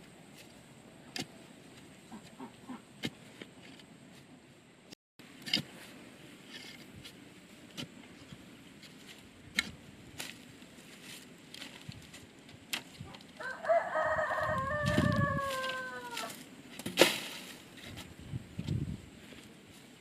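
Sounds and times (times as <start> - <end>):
rooster crowing: 13.4 - 16.4.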